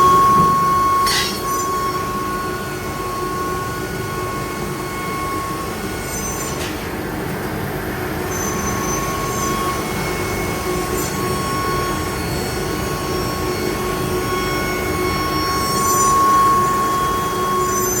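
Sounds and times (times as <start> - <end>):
spindle high whine: 0.0 - 6.8.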